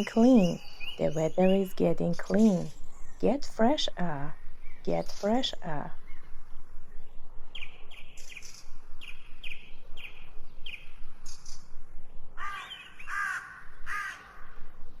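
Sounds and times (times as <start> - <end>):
birds chirping: 0.0 - 15.0
harsh bird calls: 12.4 - 14.6.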